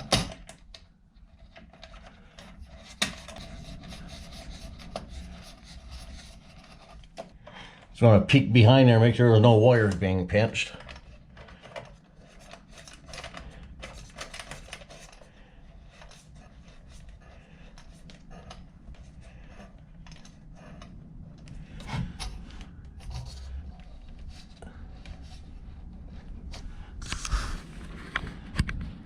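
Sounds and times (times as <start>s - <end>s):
hands handling wires: 0.0s - 8.0s, 9.0s - 29.0s.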